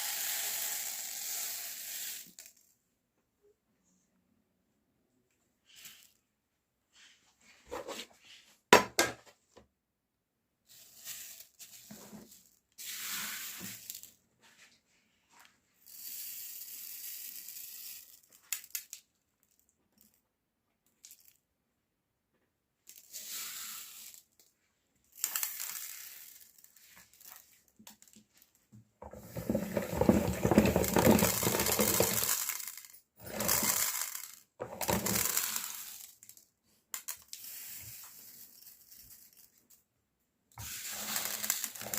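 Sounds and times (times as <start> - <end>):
candies clattering into metal grinder: 0.0 - 2.6, 25.1 - 28.1, 29.0 - 36.4, 40.6 - 41.9
grinder crunching candies: 29.3 - 36.2, 40.6 - 41.9.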